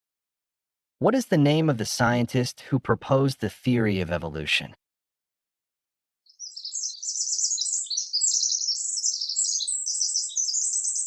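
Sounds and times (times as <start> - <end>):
small birds chirping: 6.3 - 11.0.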